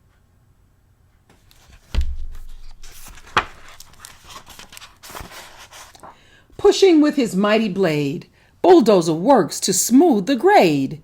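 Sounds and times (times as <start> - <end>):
paper pages rustling: 1.3 - 6.2
soft thump: 1.8 - 3.6.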